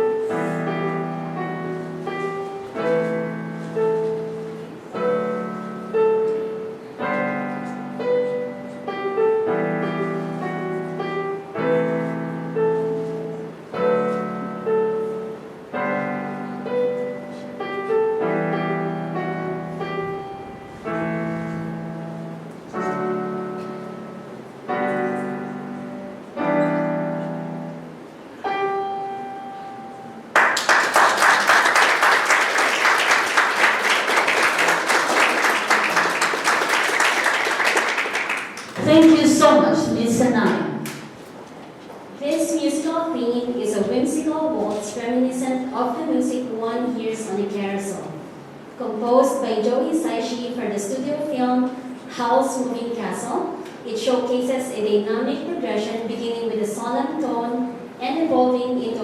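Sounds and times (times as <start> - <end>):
solo piano ballad: 0.0 - 30.4
audience applause: 30.3 - 38.8.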